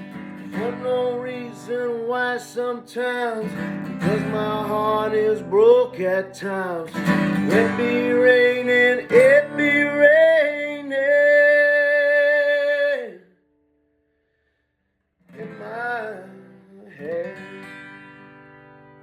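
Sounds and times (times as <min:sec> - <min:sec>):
man singing: 0:00.0 - 0:13.3, 0:15.3 - 0:18.2
acoustic guitar: 0:00.0 - 0:19.0.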